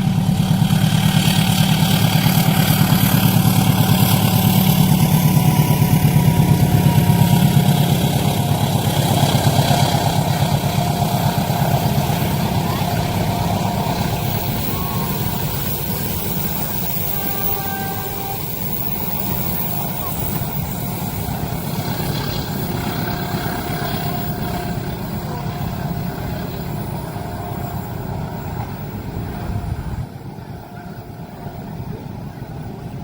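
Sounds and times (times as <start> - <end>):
train wheels rumbling: 0.0 - 33.0.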